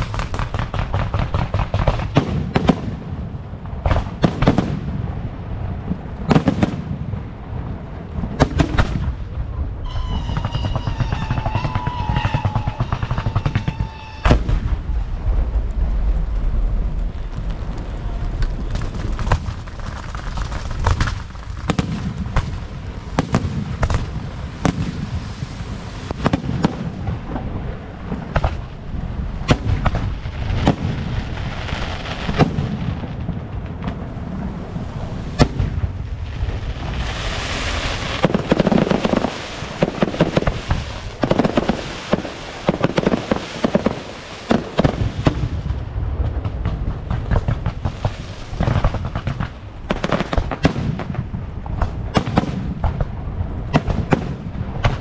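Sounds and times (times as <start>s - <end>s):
fireworks bangs: 0.0s - 55.0s
fireworks crackling volley: 0.0s - 55.0s
low rumble: 4.8s - 41.4s.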